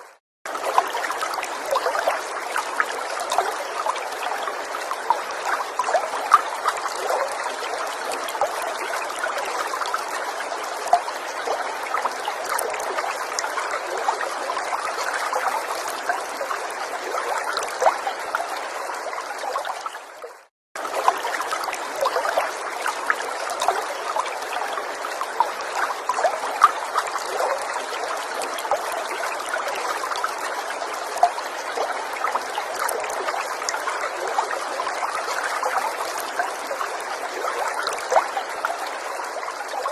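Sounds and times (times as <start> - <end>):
stream trickling and burbling: 0.0 - 39.9.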